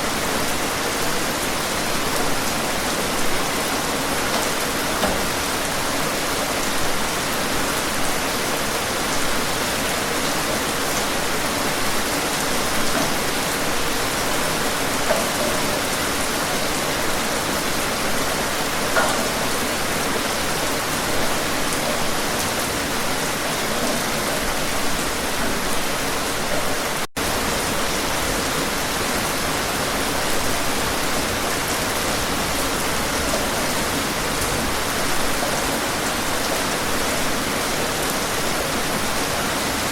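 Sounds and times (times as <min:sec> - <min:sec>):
steady rain falling: 0:00.0 - 0:39.9
distinct raindrops landing: 0:12.3 - 0:27.1.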